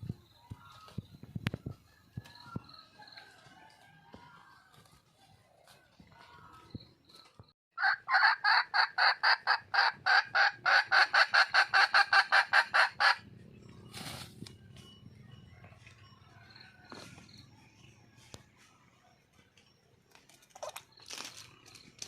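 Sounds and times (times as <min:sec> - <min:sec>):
hen clucking: 0:07.8 - 0:13.9.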